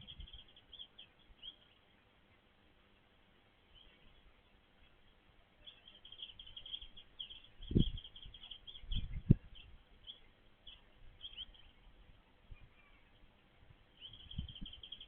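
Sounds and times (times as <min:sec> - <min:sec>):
small bird chirping: 0:00.0 - 0:15.0
dull low thumps: 0:08.8 - 0:09.6.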